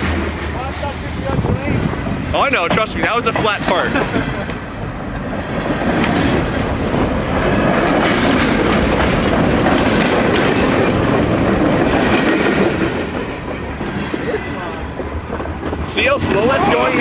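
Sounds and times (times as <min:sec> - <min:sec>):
freight train wheels clattering: 0:00.0 - 0:17.0.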